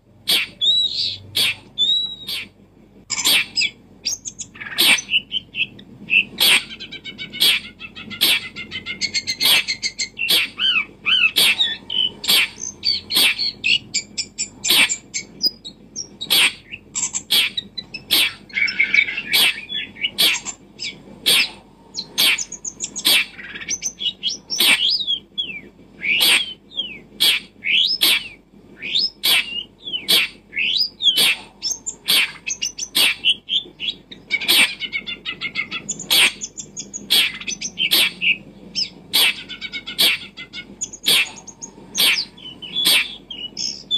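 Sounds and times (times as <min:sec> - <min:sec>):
small birds chirping: 0:00.2 - 0:43.9.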